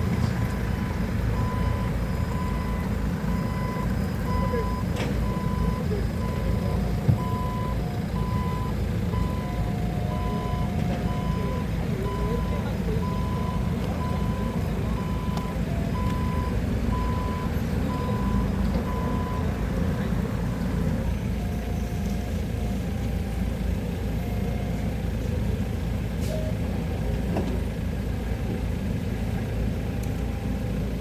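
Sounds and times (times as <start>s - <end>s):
diesel engine running: 0.0s - 31.0s
faint low-pitched beeps: 0.3s - 19.5s
reversing alarm beeping: 0.4s - 19.5s, 21.0s - 25.2s.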